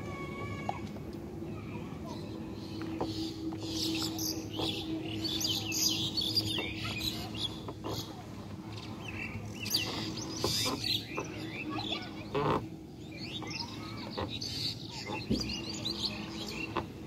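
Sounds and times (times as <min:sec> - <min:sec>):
small birds chirping: 0:01.6 - 0:17.0.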